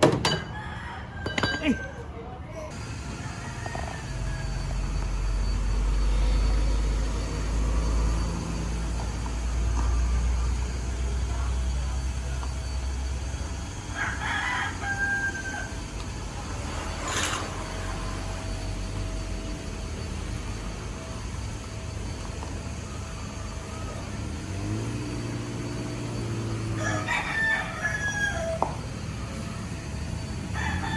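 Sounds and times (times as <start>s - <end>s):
rooster crowing: 0.3s - 2.2s, 3.0s - 5.2s, 13.7s - 15.9s, 26.6s - 29.6s, 30.2s - 30.9s.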